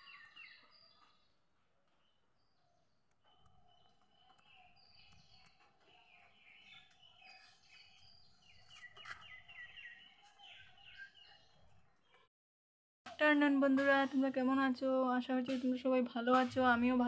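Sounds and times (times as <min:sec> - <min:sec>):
small birds chirping: 0:00.0 - 0:12.3.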